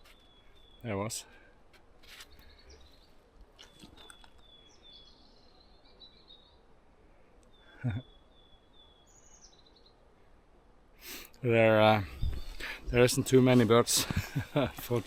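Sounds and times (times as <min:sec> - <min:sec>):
small songbirds singing: 0:00.0 - 0:01.4, 0:02.1 - 0:06.8, 0:07.4 - 0:10.2, 0:11.5 - 0:13.6.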